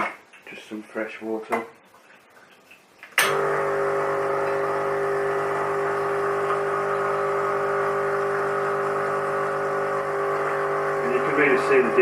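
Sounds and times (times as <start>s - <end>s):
espresso machine pump humming: 3.3s - 12.0s.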